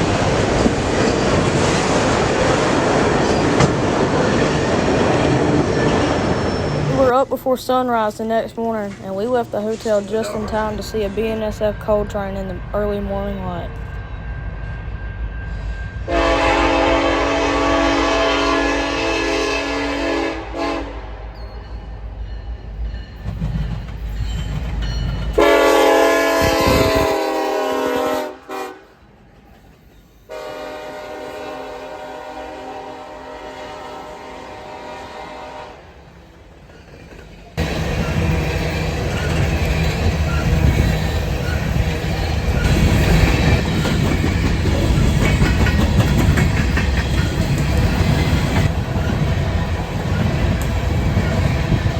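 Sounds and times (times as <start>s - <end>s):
passing train rumble: 0.0s - 51.9s
locomotive air horn blasts: 16.0s - 21.2s, 25.4s - 29.0s, 30.3s - 35.9s
train wheels clicking over rail joints: 22.6s - 25.6s, 36.3s - 51.9s.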